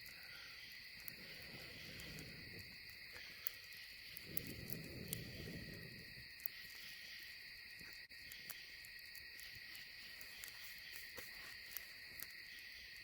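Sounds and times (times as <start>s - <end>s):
insects chirring: 0.0s - 13.0s
soft low rustle: 4.1s - 6.3s.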